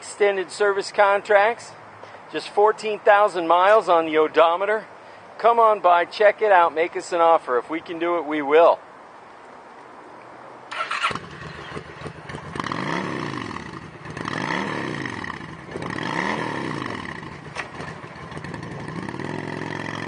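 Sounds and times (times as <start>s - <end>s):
motorcycle engine revving: 10.7s - 20.0s.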